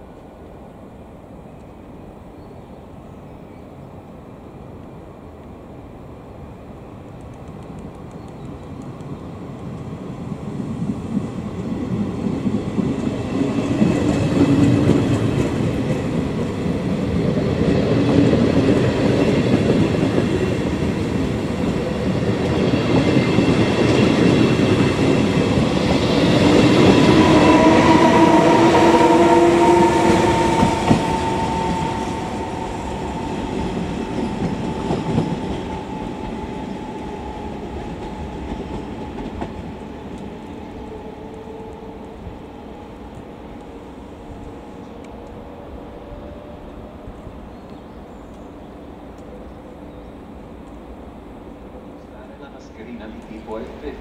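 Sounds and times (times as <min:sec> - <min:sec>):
train wheels clattering: 0:11.1 - 0:41.9
train whine falling in pitch: 0:22.4 - 0:42.9.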